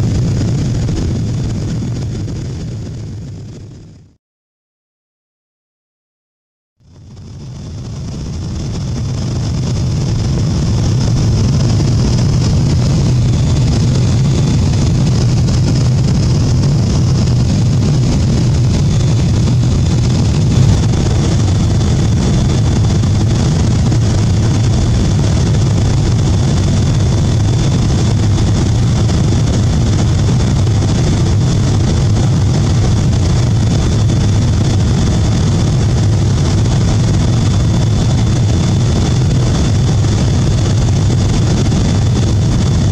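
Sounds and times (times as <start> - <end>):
rushing airflow: 0.0 - 4.0, 7.2 - 42.9
deep engine hum: 0.0 - 4.1, 6.8 - 42.9
faint high whine: 6.9 - 39.7.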